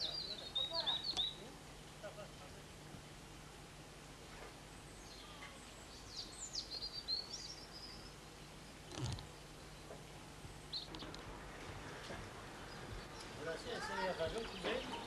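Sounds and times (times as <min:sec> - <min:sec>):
small bird chirping: 0:00.0 - 0:01.9, 0:04.8 - 0:10.0, 0:10.6 - 0:11.7, 0:12.6 - 0:15.0
low hum and hiss: 0:00.0 - 0:15.0.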